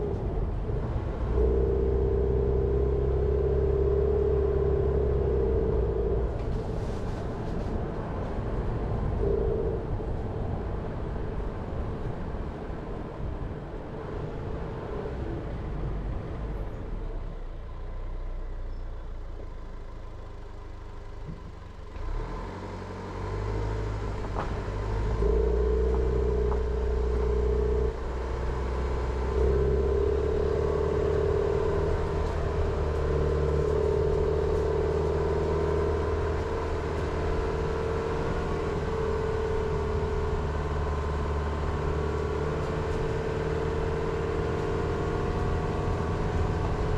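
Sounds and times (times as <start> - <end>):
car engine running: 0.0 - 14.0, 24.0 - 46.9
road noise: 0.0 - 46.9.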